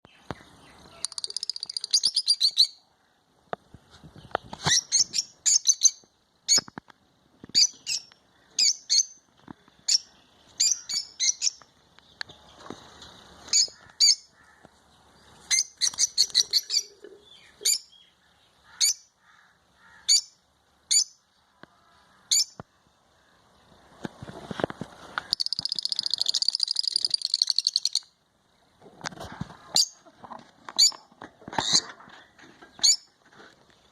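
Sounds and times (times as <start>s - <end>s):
bird chirping: 0.0s - 3.2s, 4.1s - 6.7s, 7.4s - 19.2s, 25.2s - 28.8s
rapid bird trill: 0.9s - 2.8s, 25.3s - 28.1s.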